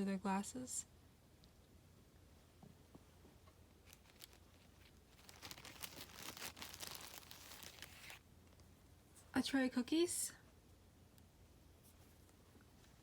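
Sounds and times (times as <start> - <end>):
plastic packaging crinkling: 3.7 - 8.2.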